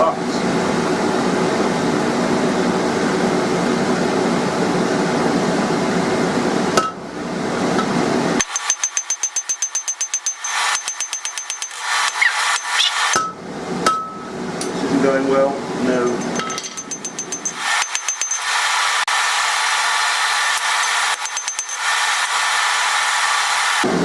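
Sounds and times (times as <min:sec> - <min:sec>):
anvil ringing: 0:08.4 - 0:11.9, 0:12.6 - 0:14.3, 0:15.9 - 0:18.5, 0:20.7 - 0:22.1
hammer blows on hot steel: 0:15.9 - 0:19.1, 0:20.3 - 0:23.6.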